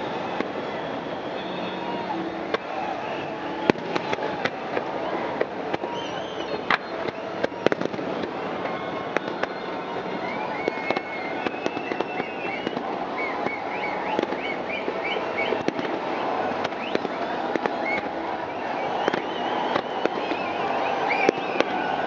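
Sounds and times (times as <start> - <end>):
short high whistles: 0.0 - 3.7, 5.8 - 7.7, 8.7 - 15.7
continuous din: 0.0 - 22.0
fireworks bangs and crackles: 0.0 - 22.0.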